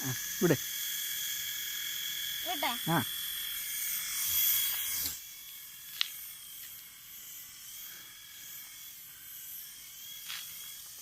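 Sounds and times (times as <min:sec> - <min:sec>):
toy helicopter motor whirring: 0:00.0 - 0:11.0.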